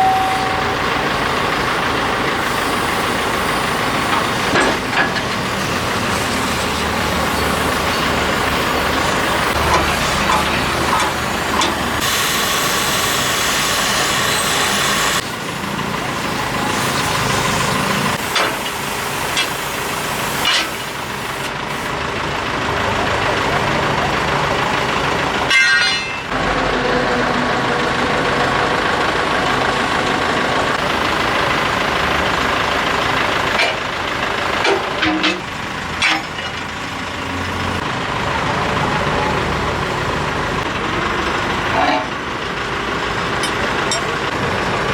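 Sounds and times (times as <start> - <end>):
heavy diesel machinery running: 0.0 - 44.9
knocks and clanks: 4.1 - 5.5, 25.5 - 26.3, 34.6 - 36.7.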